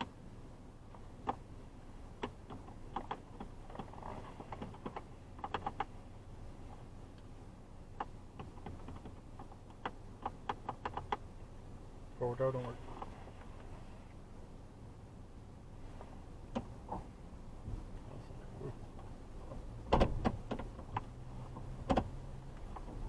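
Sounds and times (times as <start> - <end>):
low hum inside truck cab: 0.0 - 23.0.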